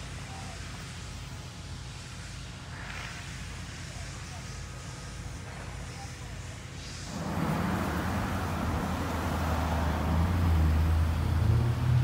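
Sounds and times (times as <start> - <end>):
road noise: 0.0 - 12.0
vehicle engine humming: 0.0 - 12.0.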